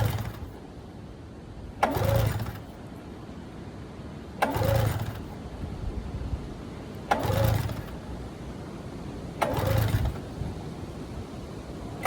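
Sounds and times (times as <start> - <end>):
engine cranking over: 0.0 - 0.6, 1.8 - 2.8, 4.4 - 5.5, 7.0 - 8.3, 9.3 - 10.6
recoil pull-starter yanked: 0.0 - 0.6, 1.8 - 2.8, 4.4 - 5.4, 7.0 - 8.0, 9.4 - 10.4.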